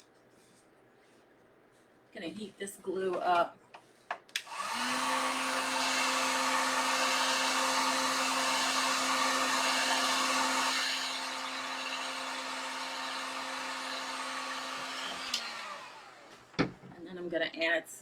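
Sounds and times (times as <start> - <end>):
hot-air blower running: 4.4 - 16.8.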